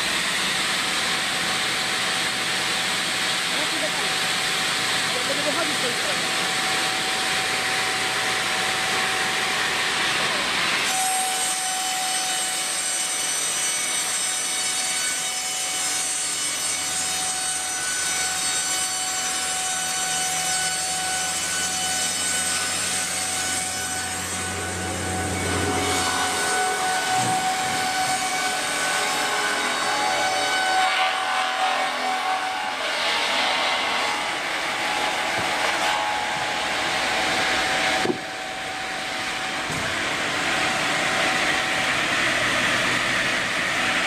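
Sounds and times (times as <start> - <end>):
machine whining: 20.7 - 44.0
saw hissing through logs: 31.4 - 35.9.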